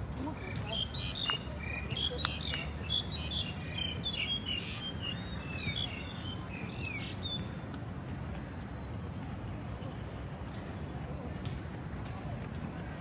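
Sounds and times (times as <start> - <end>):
birds chirping and whistling: 0.4 - 7.6.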